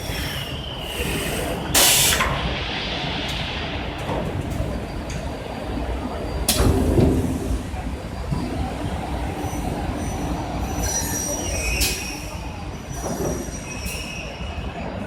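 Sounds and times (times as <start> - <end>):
high-pitched machine squeals: 10.0 - 14.8.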